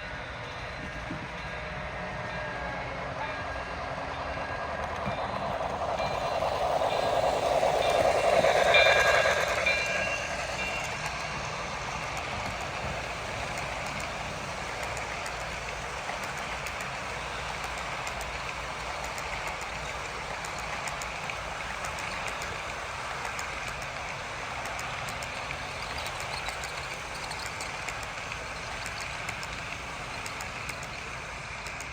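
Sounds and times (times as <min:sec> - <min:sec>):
model steam locomotive sounds: 0:00.0 - 0:31.9
rolling hiss with faint ticks: 0:00.0 - 0:31.9
steady tones: 0:02.1 - 0:20.3.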